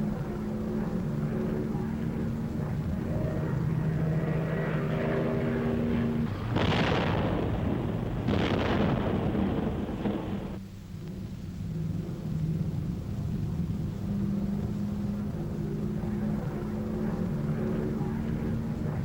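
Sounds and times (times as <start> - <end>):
propeller aircraft engine droning: 0.0 - 19.0
loud explosions: 6.2 - 10.6.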